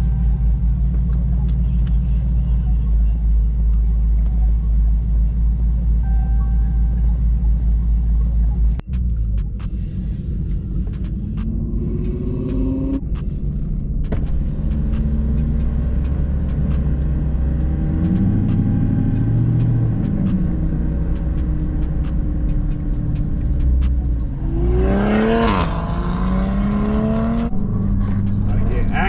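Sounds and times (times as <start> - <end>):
car engine revving: 8.6 - 29.0.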